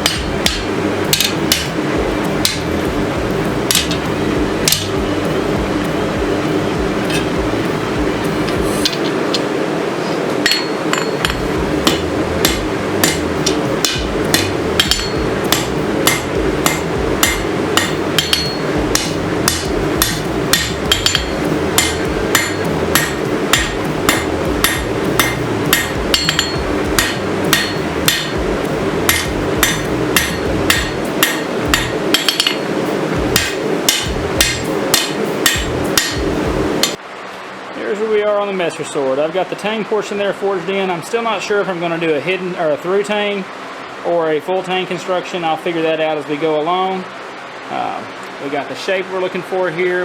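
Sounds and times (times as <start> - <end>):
hammer striking hot steel on anvil: 0.0 - 2.9, 3.5 - 5.0, 8.4 - 9.5, 10.4 - 37.0
steady hum: 0.0 - 50.0.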